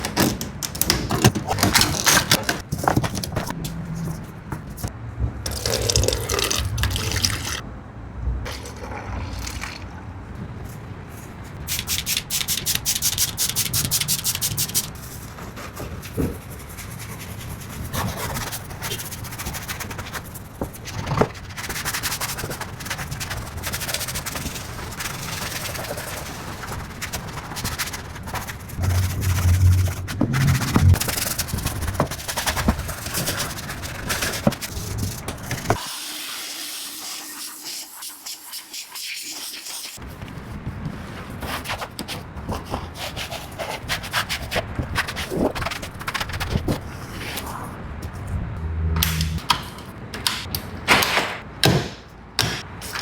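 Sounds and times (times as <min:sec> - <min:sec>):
wet liquid sounds: 0:05.5 - 0:07.6.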